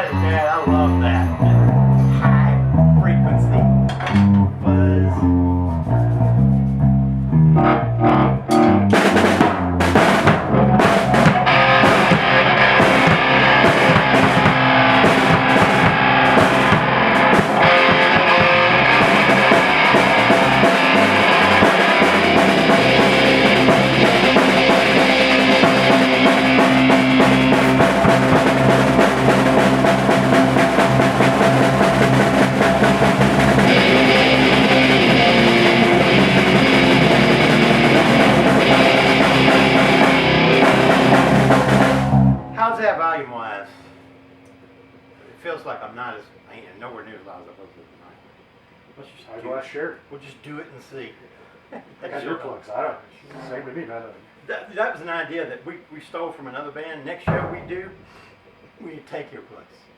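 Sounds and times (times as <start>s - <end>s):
rock band playing: 0.0s - 42.8s, 57.3s - 58.1s
drum hits: 3.8s - 4.6s, 8.0s - 43.1s, 57.3s - 58.4s.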